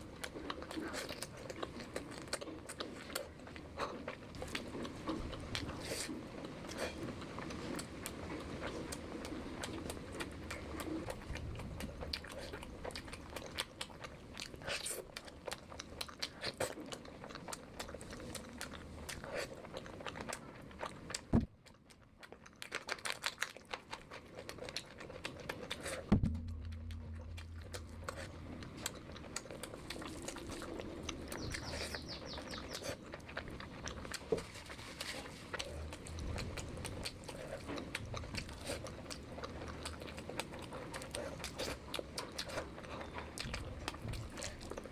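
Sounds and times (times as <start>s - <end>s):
wet chewing and mouth smacks: 0.0s - 44.9s
sharp knocks: 26.1s - 28.3s.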